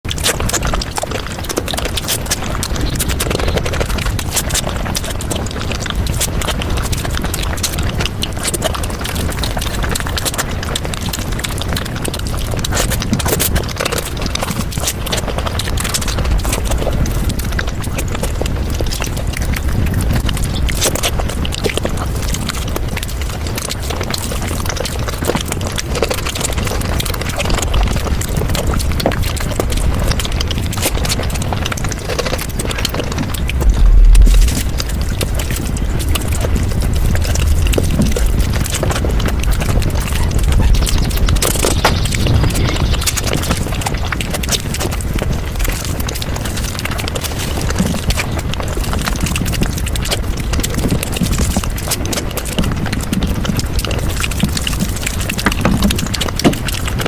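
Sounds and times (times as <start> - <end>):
chewing food: 0.0 - 57.0
low rumble: 33.1 - 44.2
loud low thump: 33.6 - 35.0.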